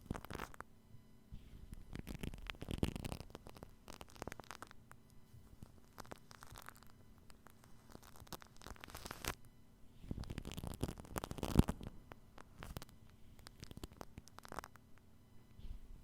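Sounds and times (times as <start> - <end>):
wet foam crackles on microphone: 1.6 - 4.8, 5.5 - 9.4, 10.1 - 14.8.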